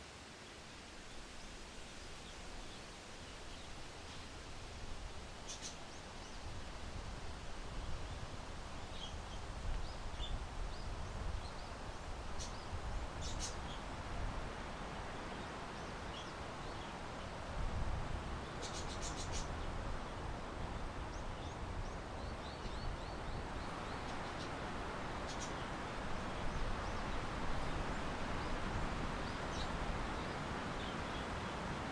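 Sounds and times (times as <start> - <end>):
small birds chirping: 5.4 - 6.5, 8.8 - 13.9, 15.2 - 17.0, 18.4 - 31.7.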